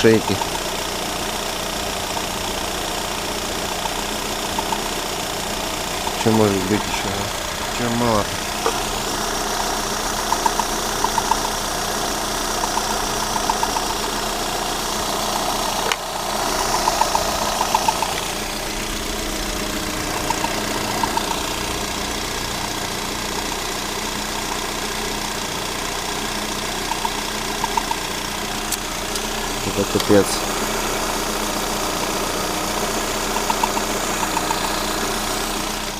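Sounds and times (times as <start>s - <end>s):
car engine running: 0.0s - 35.9s
sharp click: 3.8s - 4.9s, 10.2s - 11.5s, 12.7s - 14.0s, 16.6s - 18.3s, 26.9s - 28.0s, 33.3s - 34.8s.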